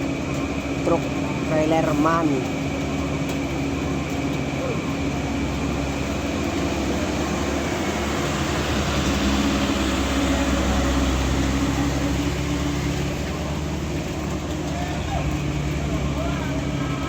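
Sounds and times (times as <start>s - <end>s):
diesel truck engine under load: 0.0s - 17.0s
road noise: 0.0s - 17.0s.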